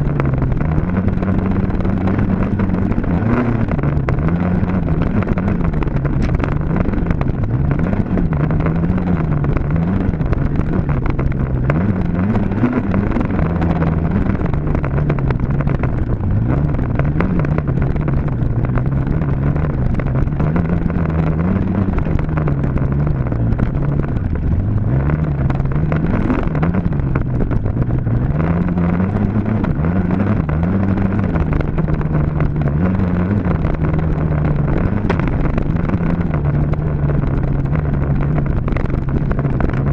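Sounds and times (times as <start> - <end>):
dirt bike engine revving: 0.0 - 27.6.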